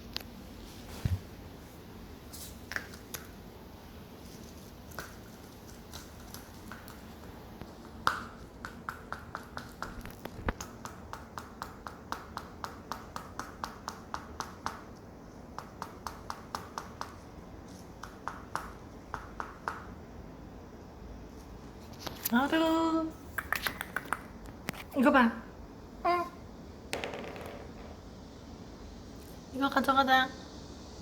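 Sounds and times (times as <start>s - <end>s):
stone clicking on hard floor: 5.9s - 14.9s, 26.9s - 28.1s.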